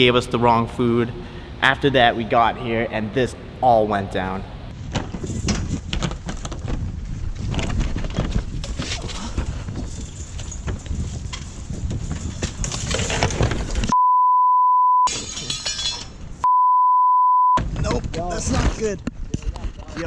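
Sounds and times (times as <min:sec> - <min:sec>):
censor bleep: 0:13.9 - 0:15.1, 0:16.4 - 0:17.6.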